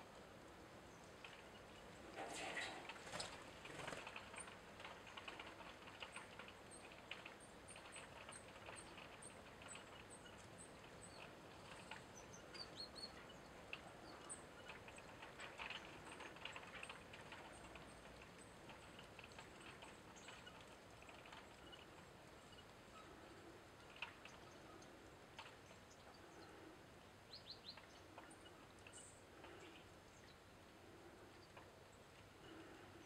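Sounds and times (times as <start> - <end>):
soft scattered clicks: 0.1 - 33.0
small bird chirping: 3.8 - 26.6, 27.2 - 30.5.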